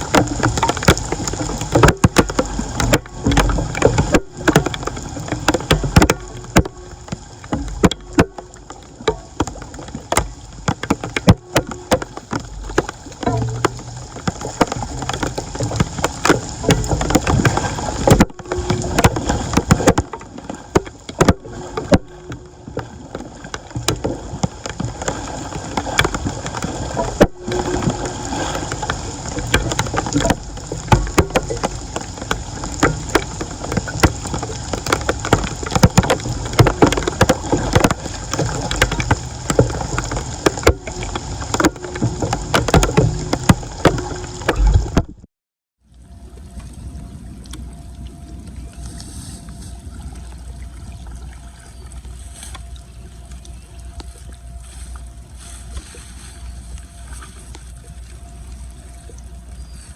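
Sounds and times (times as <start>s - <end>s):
floodwater splashing: 0.0s - 45.2s
knocks and scrapes: 0.0s - 45.2s.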